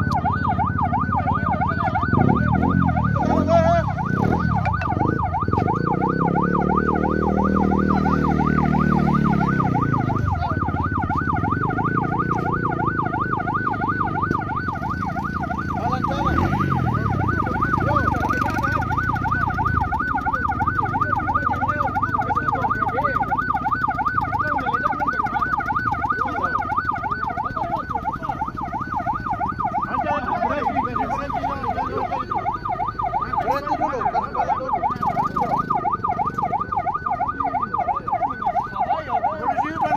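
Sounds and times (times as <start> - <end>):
warbling emergency siren: 0.0 - 39.9.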